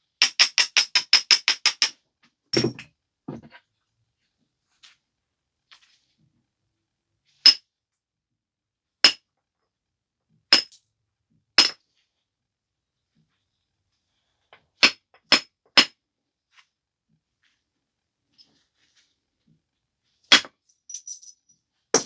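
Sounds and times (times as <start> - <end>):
clinking strikes on stone: 2.6 - 2.9, 10.5 - 10.8.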